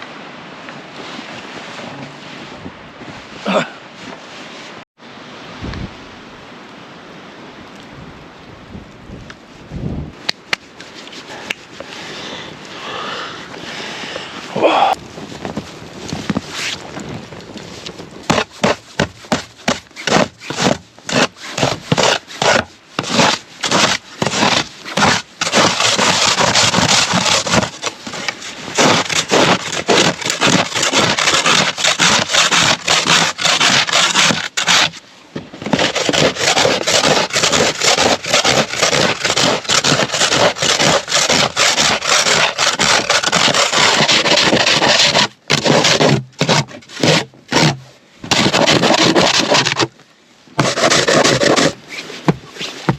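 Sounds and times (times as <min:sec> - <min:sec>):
hand tool rubbing wood: 0:18.3 - 0:35.0, 0:35.6 - 0:49.9, 0:50.6 - 0:52.9.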